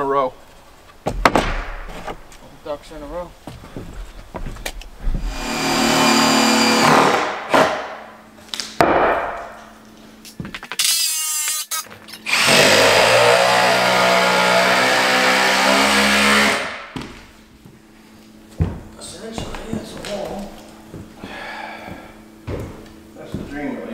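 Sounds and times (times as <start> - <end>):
power tool running under load: 5.2 - 7.8, 12.2 - 17.0.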